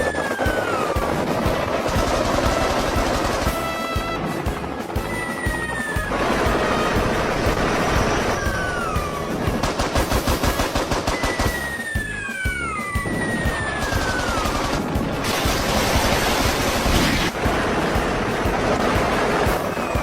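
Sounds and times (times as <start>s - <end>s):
rapid machine-gun fire: 0.0s - 4.4s, 6.1s - 11.7s, 13.8s - 20.0s
music: 0.0s - 20.0s
falling whistles: 5.0s - 6.1s, 11.0s - 14.6s, 19.5s - 20.0s.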